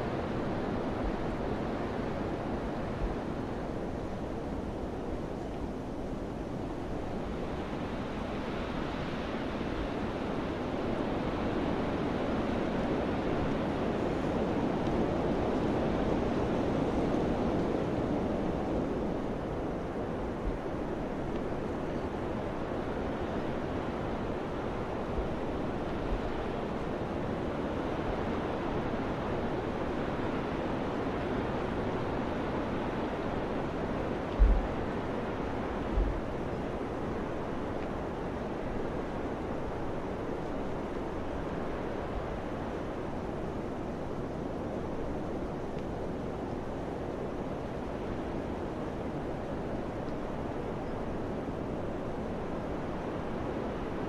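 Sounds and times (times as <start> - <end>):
wind blowing: 32.7 - 42.7.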